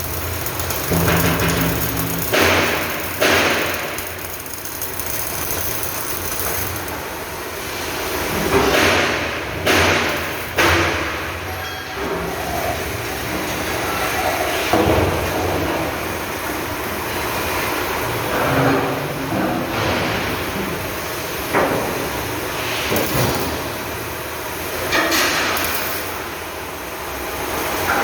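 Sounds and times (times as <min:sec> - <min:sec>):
metallic knocks and clangs: 0:00.0 - 0:07.0
workshop noise: 0:00.0 - 0:28.0.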